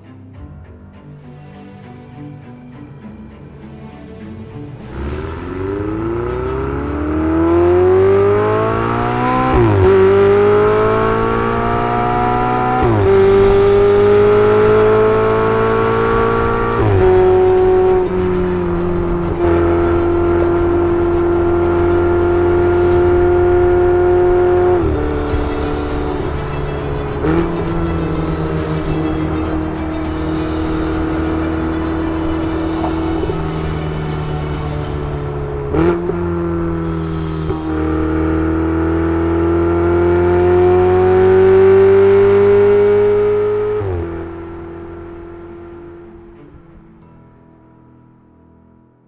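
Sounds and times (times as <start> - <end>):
sports car engine accelerating: 4.3 - 46.6.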